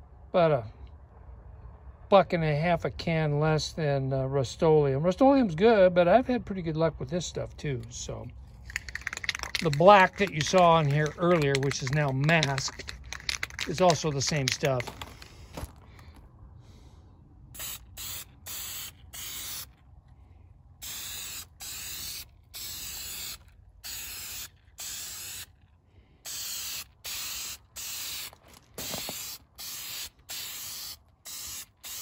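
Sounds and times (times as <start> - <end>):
spray paint can hissing: 8.6 - 15.4, 17.6 - 19.8, 20.8 - 25.6, 26.2 - 32.0.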